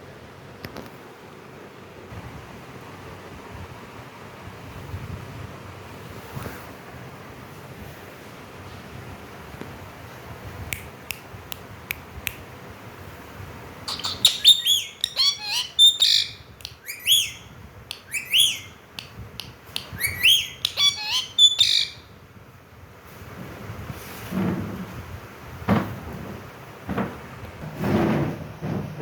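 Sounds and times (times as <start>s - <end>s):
parakeet calling: 13.8s - 22.2s
sharp clicks: 17.9s - 20.8s.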